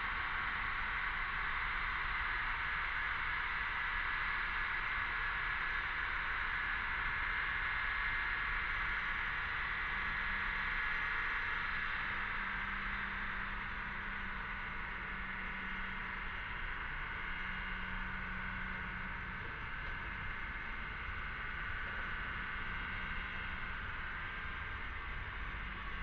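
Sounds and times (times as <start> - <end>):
low steady hum: 5.5 - 26.0.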